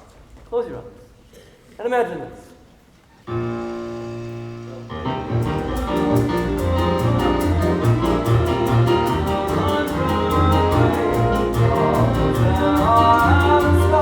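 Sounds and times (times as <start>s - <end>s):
theatre orchestra music: 3.3s - 14.0s.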